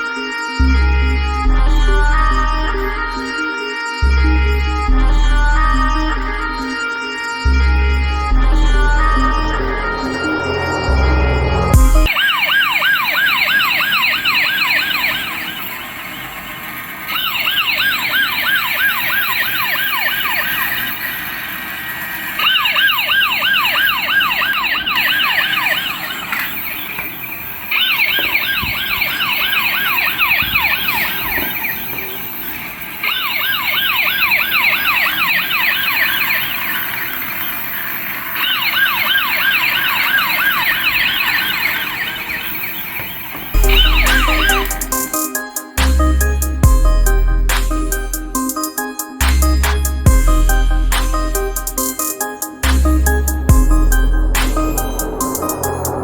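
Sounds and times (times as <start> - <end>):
toy police siren yelping: 12.0 - 16.4, 17.0 - 45.8.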